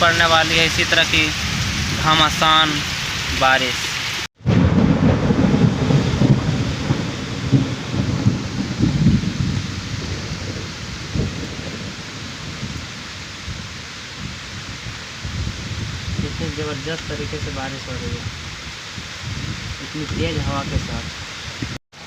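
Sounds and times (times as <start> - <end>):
heavy rain pouring: 0.0 - 22.0
deep rumble: 4.4 - 18.4.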